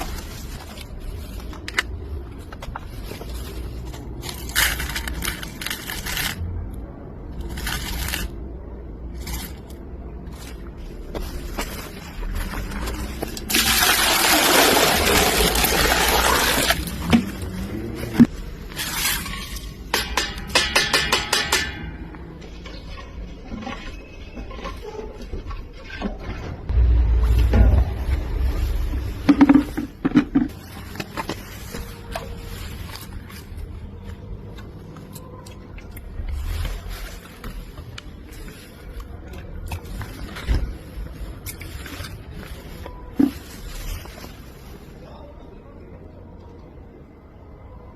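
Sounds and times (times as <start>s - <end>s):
low rumble: 26.6s - 30.8s.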